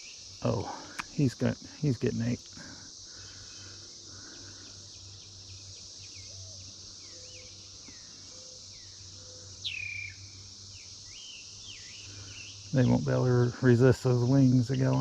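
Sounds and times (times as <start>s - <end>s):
birds chirping: 0.0s - 15.0s
cicadas chorus: 0.0s - 15.0s.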